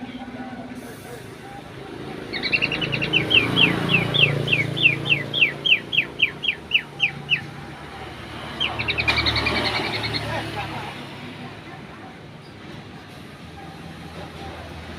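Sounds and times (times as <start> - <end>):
bird singing whistled notes: 2.3 - 7.5.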